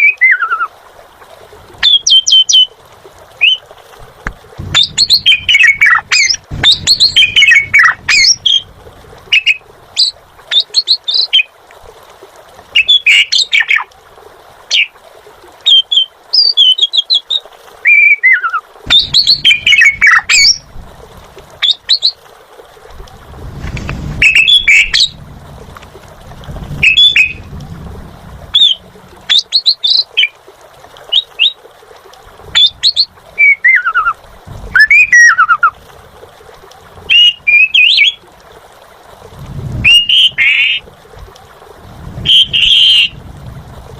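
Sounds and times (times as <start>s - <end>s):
starling singing: 4.6s - 11.5s, 17.9s - 20.7s, 24.2s - 25.2s, 26.8s - 27.5s.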